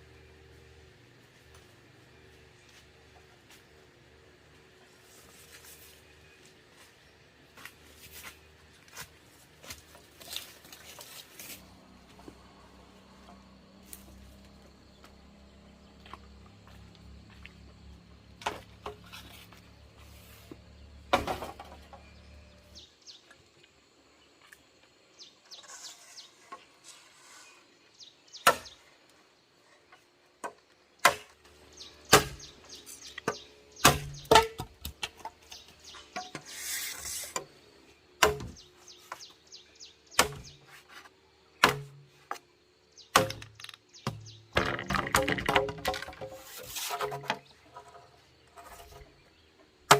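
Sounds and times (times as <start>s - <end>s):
sharp knocks and clatters: 43.1s - 48.0s.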